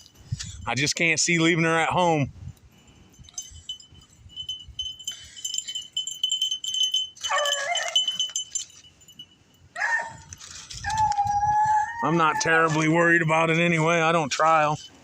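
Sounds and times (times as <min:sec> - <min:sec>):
metallic tinkling and jingling: 0:00.0 - 0:11.4, 0:12.0 - 0:15.0
hounds bawling: 0:07.2 - 0:08.2, 0:09.8 - 0:13.9.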